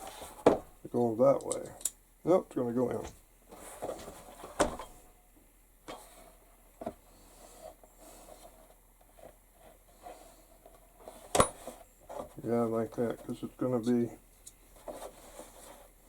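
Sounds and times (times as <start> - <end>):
hardware and tools clicking: 1.3 - 2.0.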